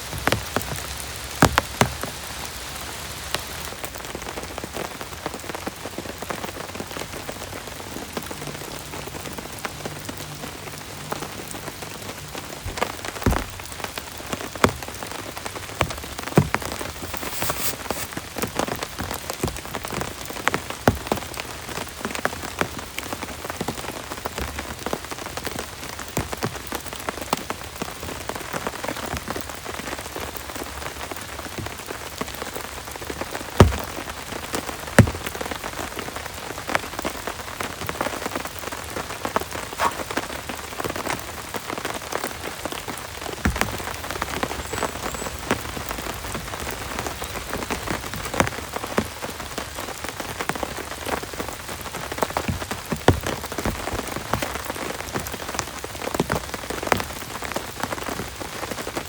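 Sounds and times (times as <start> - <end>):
heavy rain falling: 0.0 - 17.2.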